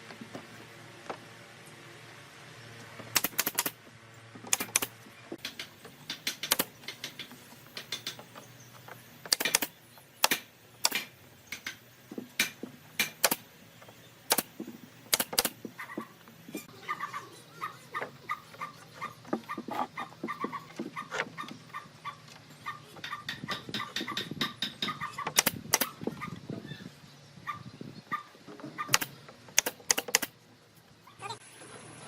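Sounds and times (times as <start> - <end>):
knocks and clicks on wood: 4.5 - 13.4, 18.0 - 26.2.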